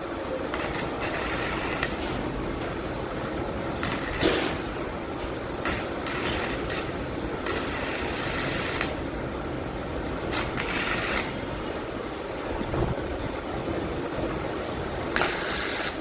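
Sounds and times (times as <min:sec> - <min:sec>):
welding arc crackling and hissing: 0:00.5 - 0:02.8, 0:03.8 - 0:09.1, 0:10.2 - 0:11.4, 0:15.1 - 0:16.0.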